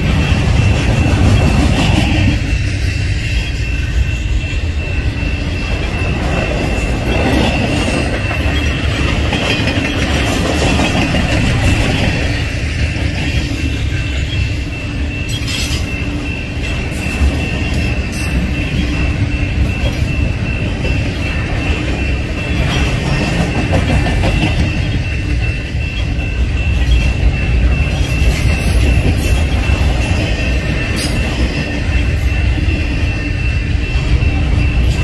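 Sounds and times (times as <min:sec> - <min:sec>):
steel wheels rumbling on rail: 0:00.0 - 0:35.0.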